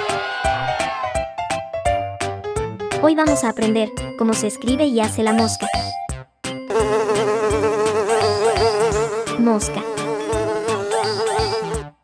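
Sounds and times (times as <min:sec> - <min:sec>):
housefly buzzing: 0:06.7 - 0:12.0.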